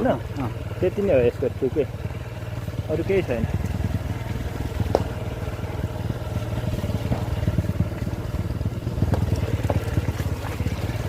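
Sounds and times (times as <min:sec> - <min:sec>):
motorcycle engine running slowly: 0:00.0 - 0:11.0
clicks and clatter from bike: 0:06.8 - 0:11.0.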